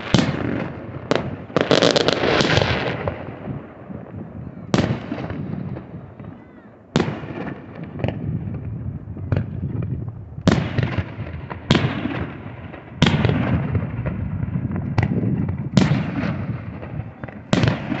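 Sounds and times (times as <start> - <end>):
fireworks booming: 0.0 - 18.0
faint fireworks pops: 4.2 - 18.0.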